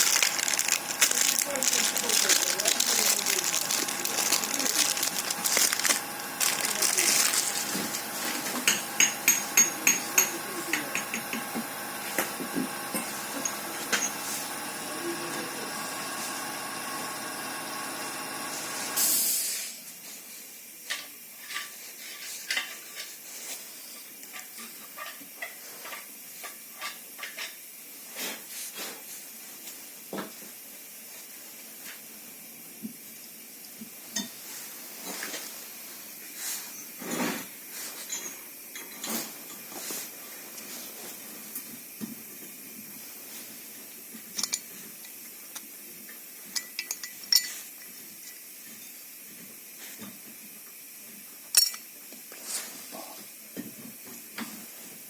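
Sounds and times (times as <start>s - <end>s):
metal parts clinking and knocking: 0.0s - 11.3s, 51.6s - 51.8s.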